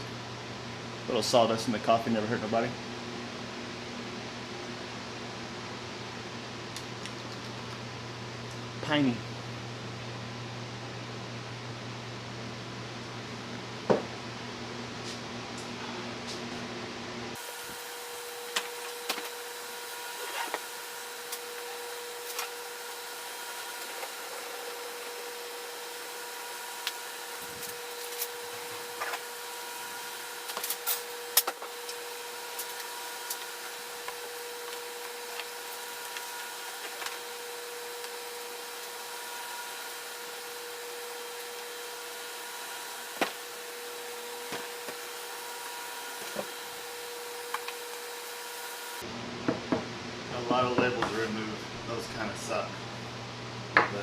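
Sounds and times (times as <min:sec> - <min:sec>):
orbital sander on wood: 0:17.4 - 0:49.1.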